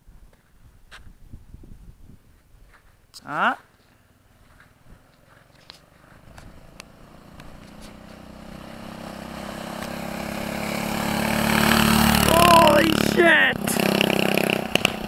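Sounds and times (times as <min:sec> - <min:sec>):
minibike engine approaching: 0:03.8 - 0:15.0.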